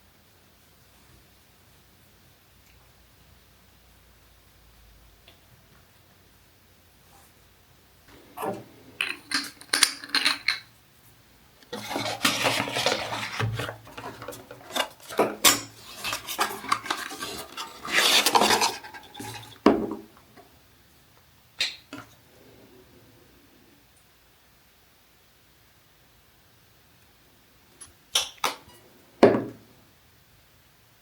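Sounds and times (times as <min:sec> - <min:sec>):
bottles and jars clicking: 0:08.4 - 0:10.7
packaging rustling: 0:11.7 - 0:19.6.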